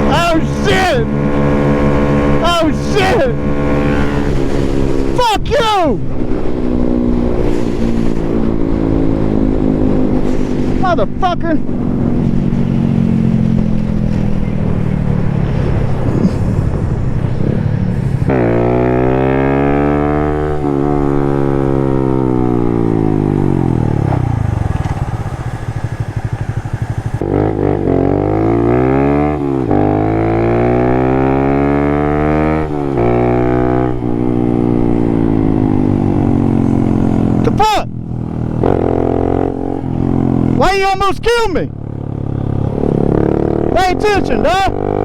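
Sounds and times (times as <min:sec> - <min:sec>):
wind rushing: 0:00.0 - 0:31.6
motorcycle engine: 0:00.0 - 0:45.0.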